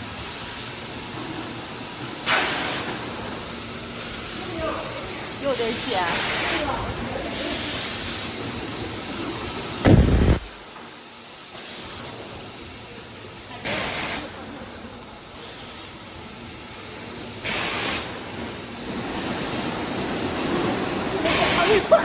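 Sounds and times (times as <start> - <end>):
steady machine noise: 0.0 - 10.8
air hiss bursts: 0.0 - 12.6, 15.4 - 16.8, 17.4 - 22.0.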